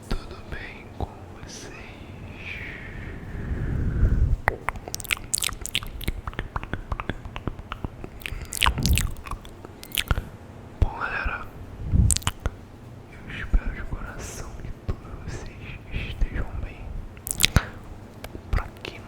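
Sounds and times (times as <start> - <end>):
lip smacks: 4.0 - 11.0, 11.8 - 12.6, 17.2 - 19.0
wet mouth clicks and pops: 4.5 - 10.3, 11.9 - 12.6, 17.2 - 19.0.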